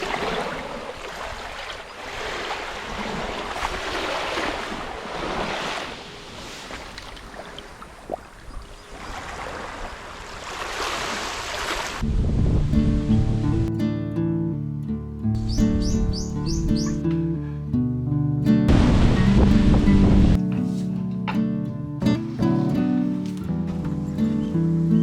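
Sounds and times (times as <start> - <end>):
gusty wind rushing: 12.0 - 13.7, 18.7 - 20.4
wind buffeting microphone: 12.0 - 13.7, 18.7 - 20.4
music with guitar: 12.0 - 25.0.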